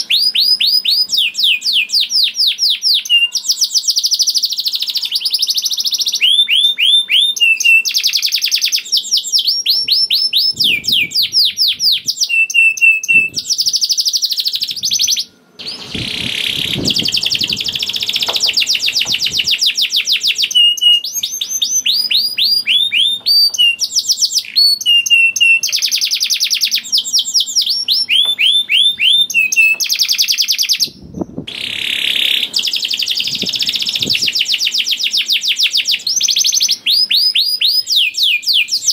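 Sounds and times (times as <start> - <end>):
canary singing trills: 0.0 - 38.9
low noise: 14.5 - 29.8.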